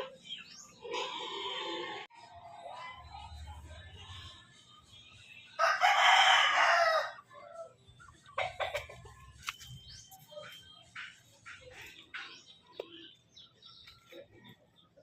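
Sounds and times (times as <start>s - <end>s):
rooster crowing: 5.6s - 7.2s.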